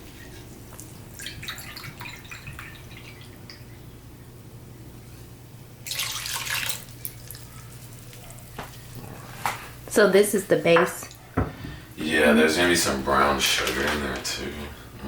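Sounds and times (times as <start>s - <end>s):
liquid pouring: 0.8s - 3.8s, 5.8s - 8.1s.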